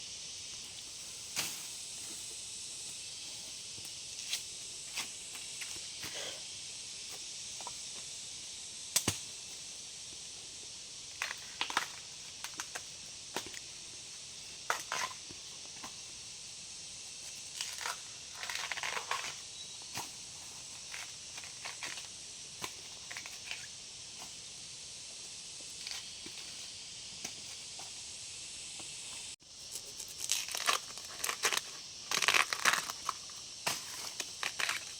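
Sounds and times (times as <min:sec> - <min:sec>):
steady high hiss: 0:00.0 - 0:34.9
plant stems crackling and snapping: 0:30.0 - 0:34.9.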